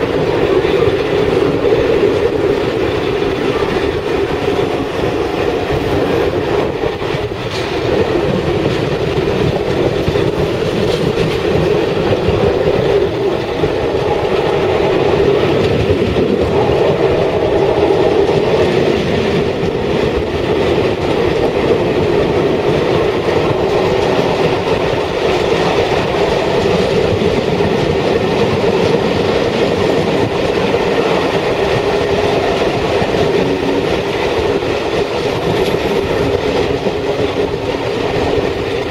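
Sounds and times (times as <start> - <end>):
train rumbling on rails: 0.0 - 38.9
wheels clattering over rail joints: 0.0 - 38.9.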